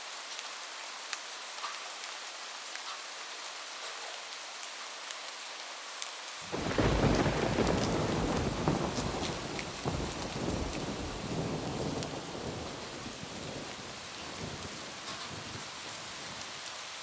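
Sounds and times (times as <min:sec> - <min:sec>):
rain falling on a roof: 0:00.0 - 0:17.0
thunder rumble: 0:06.5 - 0:16.5.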